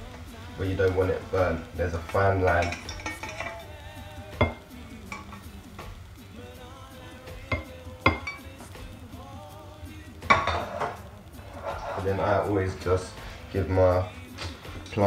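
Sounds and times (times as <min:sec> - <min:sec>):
food sizzling in hot oil: 0:00.0 - 0:15.0
utensil clinking against pan: 0:02.0 - 0:03.8, 0:04.4 - 0:05.5, 0:07.5 - 0:08.6, 0:10.3 - 0:11.0.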